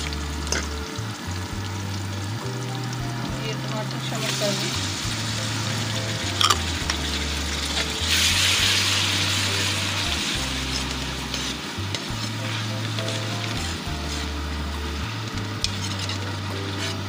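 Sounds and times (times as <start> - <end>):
onions and tomatoes sizzling in oil: 0.0 - 17.0.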